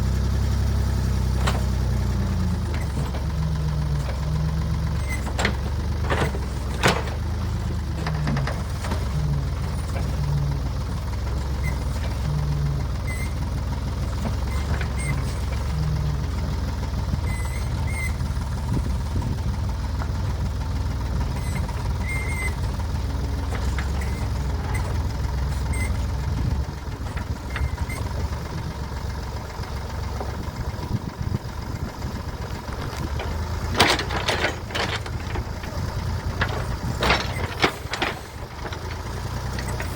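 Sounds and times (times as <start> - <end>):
backhoe engine running: 0.0 - 39.9
squeaks from working gear: 3.9 - 10.5, 11.2 - 13.4, 14.2 - 16.4, 17.2 - 18.4, 21.3 - 29.0, 32.7 - 39.9
metal clanks: 5.0 - 10.3, 32.2 - 39.9.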